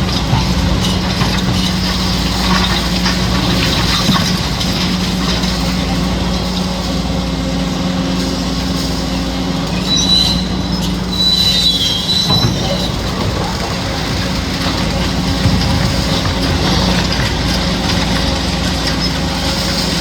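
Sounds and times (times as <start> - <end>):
excavator diesel engine running: 0.0 - 20.0
high-pitched metallic squeal: 9.0 - 14.3.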